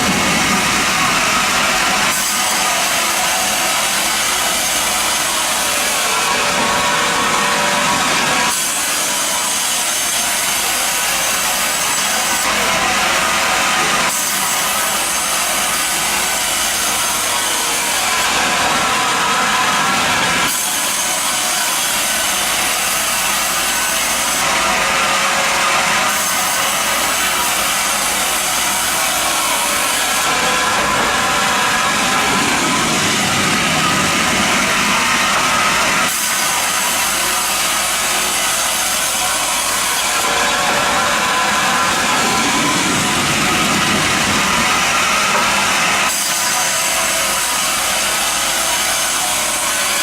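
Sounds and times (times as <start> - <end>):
sawmill cutting wood: 0.0 - 50.0.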